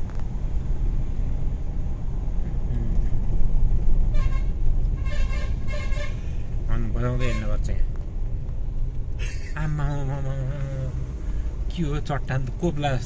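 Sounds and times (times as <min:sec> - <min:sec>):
vehicle engine and road noise: 0:00.0 - 0:13.0
car horn blasts: 0:04.1 - 0:06.3, 0:07.1 - 0:07.7.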